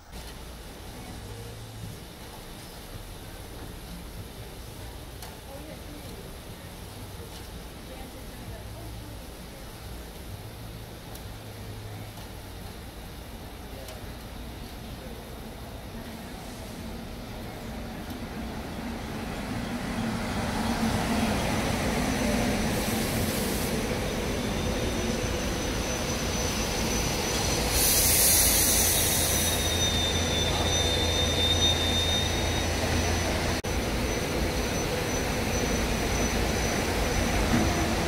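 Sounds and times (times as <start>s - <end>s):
train rumbling on track: 0.0s - 38.0s
high-pitched wheel squeal: 24.1s - 38.0s
loud hiss burst: 27.2s - 29.8s.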